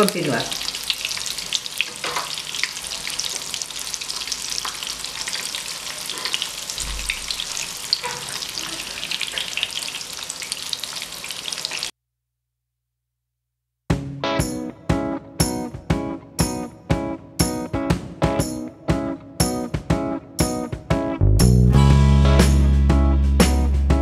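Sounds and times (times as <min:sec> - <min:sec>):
cutlet frying in hot oil: 0:00.0 - 0:11.9.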